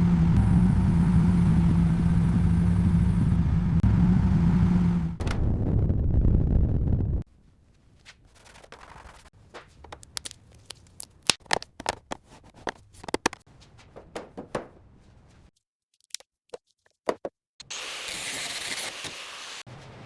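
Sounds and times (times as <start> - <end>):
clicks and taps on small parts: 9.9 - 13.4.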